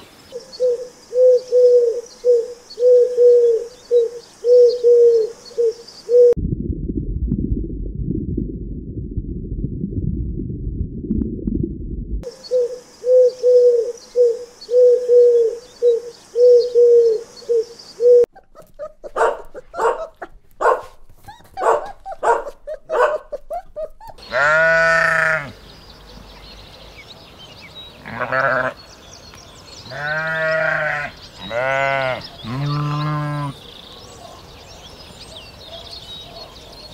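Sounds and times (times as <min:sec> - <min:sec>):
steady low rumble: 0:06.4 - 0:12.3
puppies yipping and growling: 0:18.3 - 0:24.9
sheep bleat: 0:24.2 - 0:25.6, 0:28.0 - 0:28.8, 0:29.8 - 0:33.6.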